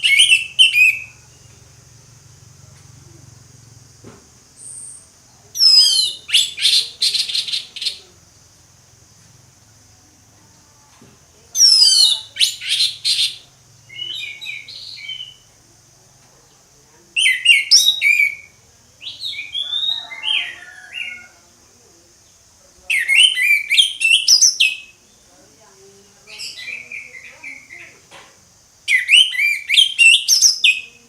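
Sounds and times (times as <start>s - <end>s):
thrush singing whistled song: 0.0s - 1.6s, 4.6s - 8.0s, 11.6s - 15.6s, 17.2s - 21.3s, 22.9s - 25.0s, 28.9s - 31.0s
faint high hiss: 0.0s - 31.0s.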